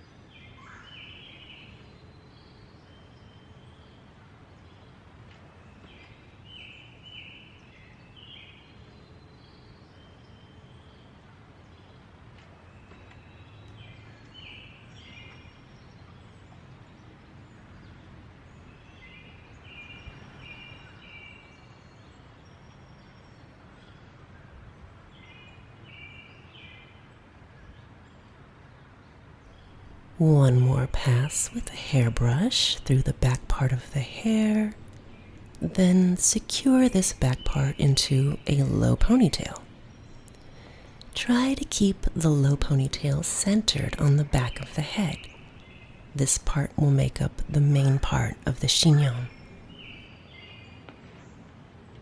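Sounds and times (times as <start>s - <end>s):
outdoor background hum: 29.4s - 52.0s
wild birds chirping: 29.6s - 50.8s.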